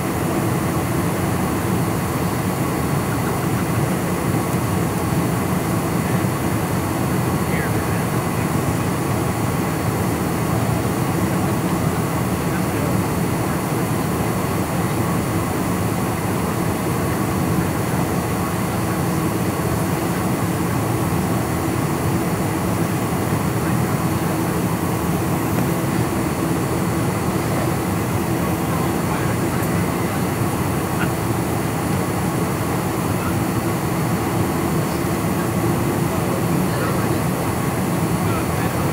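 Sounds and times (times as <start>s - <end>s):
jet engine and airflow noise: 0.0s - 38.9s.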